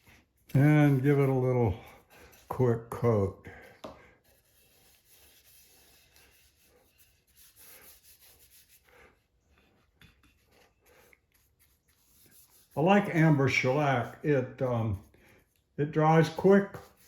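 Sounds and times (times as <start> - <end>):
soft rubbing strokes on wood: 4.1 - 17.0.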